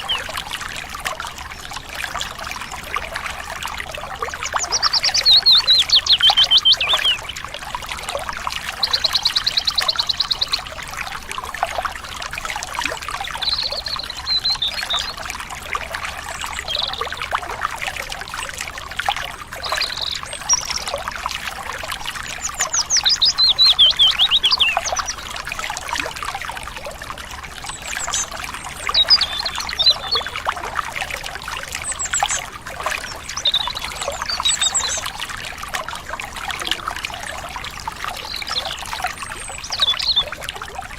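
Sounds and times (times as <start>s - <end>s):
stream trickling: 0.0s - 40.9s
birds chirping and trilling: 4.3s - 7.4s, 13.3s - 15.2s, 19.6s - 20.9s, 22.4s - 25.3s, 27.8s - 30.3s, 33.0s - 35.1s, 38.1s - 40.3s.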